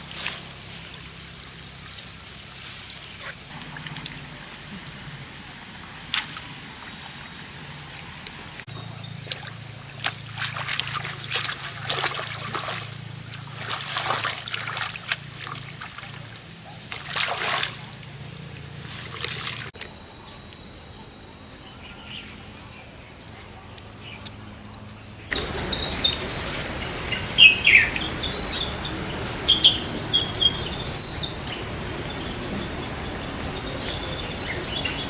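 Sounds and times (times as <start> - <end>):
water splashing and trickling: 0.0 - 19.9, 25.3 - 35.0
steady low hum: 24.0 - 35.0.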